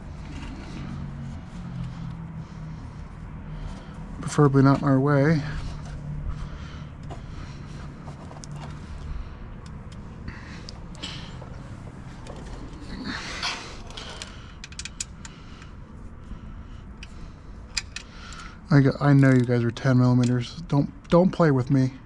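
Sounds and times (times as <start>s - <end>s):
rustling of tools: 0.0s - 15.4s
low steady background hum: 0.0s - 22.0s
metallic clicks of hand tools: 14.2s - 15.4s.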